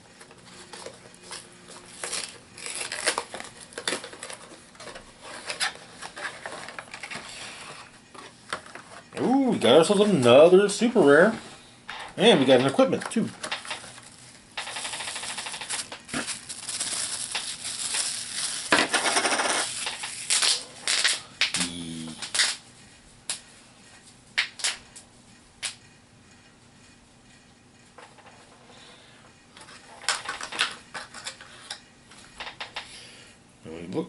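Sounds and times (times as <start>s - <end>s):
plastic packaging crinkling: 0.4s - 7.6s, 12.5s - 21.3s.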